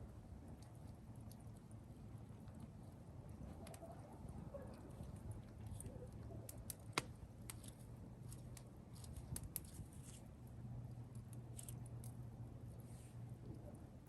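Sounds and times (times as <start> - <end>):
campfire wood crackling: 0.0 - 14.0
faint low hum: 0.0 - 14.0
fire pops: 5.0 - 10.2.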